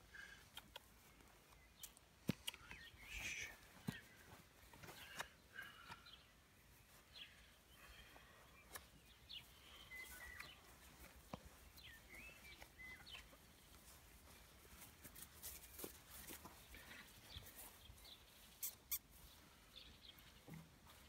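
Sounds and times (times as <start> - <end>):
faint bird chirps: 2.4 - 4.4, 5.0 - 13.4, 16.7 - 19.5.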